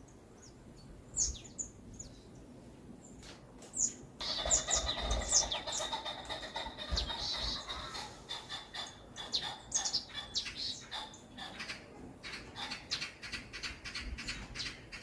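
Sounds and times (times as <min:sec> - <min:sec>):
birds chirping: 0:03.8 - 0:15.0.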